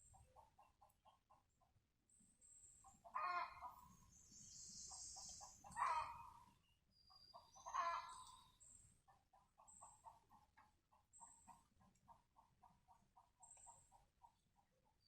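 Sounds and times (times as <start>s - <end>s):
animal clucking: 0.1s - 1.5s, 2.8s - 4.0s, 4.9s - 6.5s, 7.2s - 8.4s, 9.1s - 15.0s.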